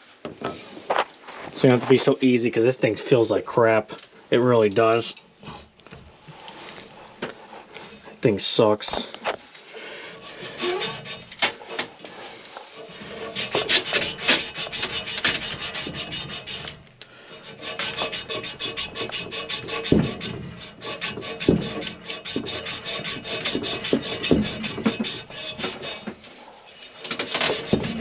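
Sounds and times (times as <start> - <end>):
abrasive cloth scraping copper pipe: 9.2 - 28.0.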